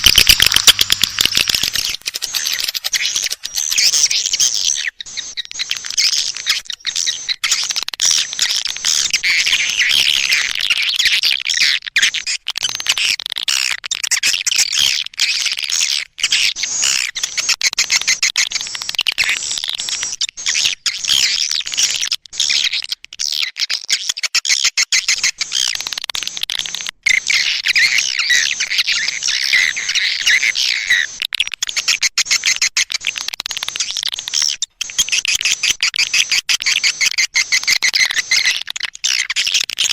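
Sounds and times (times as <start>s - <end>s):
swiftlets twittering and chirping: 0.0s - 11.7s, 25.0s - 39.9s.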